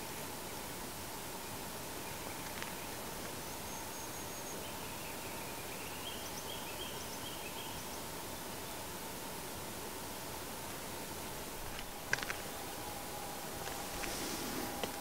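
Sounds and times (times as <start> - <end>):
bird chirping faintly: 0.0 - 9.0
background hiss: 0.0 - 15.0.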